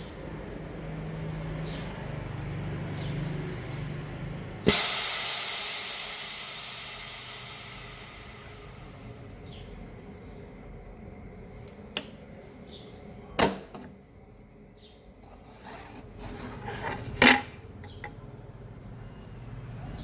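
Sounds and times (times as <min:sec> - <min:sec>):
faint low background hum: 0:00.0 - 0:20.0.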